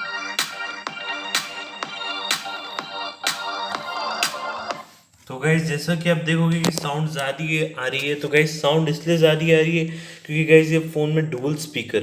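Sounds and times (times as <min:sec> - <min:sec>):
electronic music with steady beat: 0:00.0 - 0:05.0.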